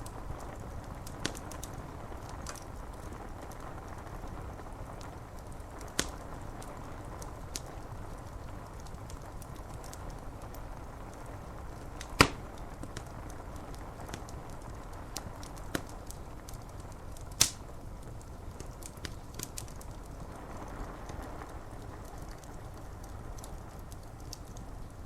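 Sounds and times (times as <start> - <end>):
rain on window glass: 0.0 - 25.0
wood fire crackling: 0.0 - 25.0
fire popping loudly: 11.7 - 13.2, 17.2 - 19.6.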